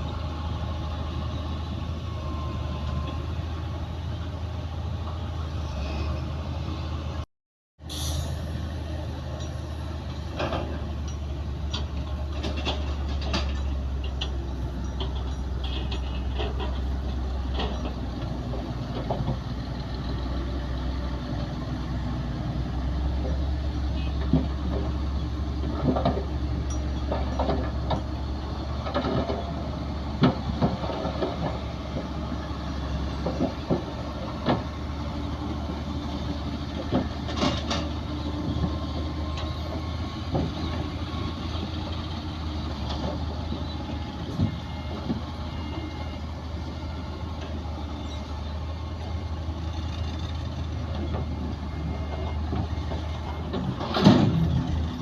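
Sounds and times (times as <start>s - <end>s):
heavy diesel machinery running: 0.0s - 55.0s
metal knocks and clanks: 10.3s - 19.5s, 25.6s - 28.2s, 52.0s - 54.8s.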